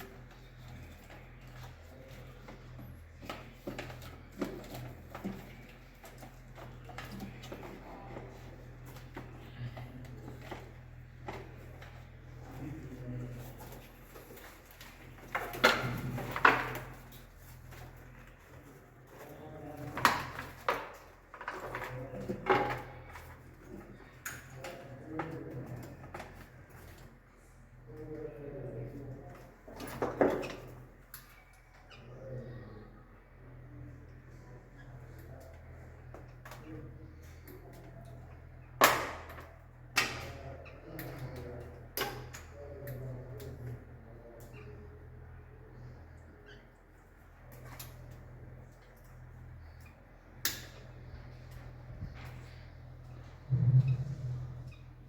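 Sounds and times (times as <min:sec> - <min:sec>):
steady low hum: 0:30.7 - 0:55.0.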